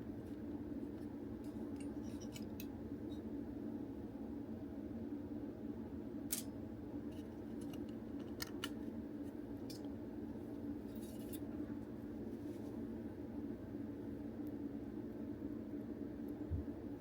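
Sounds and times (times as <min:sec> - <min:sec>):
steady low hum: 0:00.0 - 0:17.0
small plastic parts clicking: 0:07.6 - 0:08.8.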